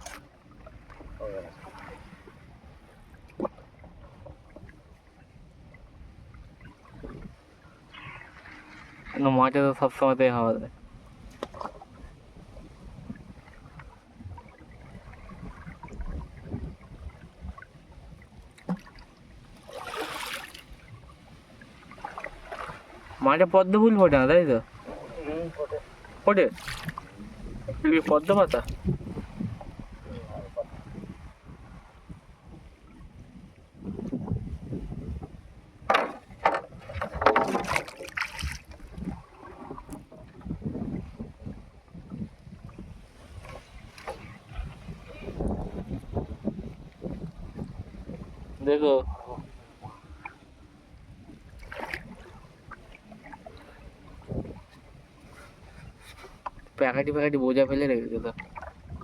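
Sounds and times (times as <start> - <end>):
water splashing: 0.0 - 4.7, 13.2 - 30.7, 36.0 - 41.2, 42.7 - 48.4, 51.3 - 56.7, 58.1 - 59.0
water sloshing around boat: 0.0 - 59.0
wind rumbling on microphone: 0.0 - 59.0.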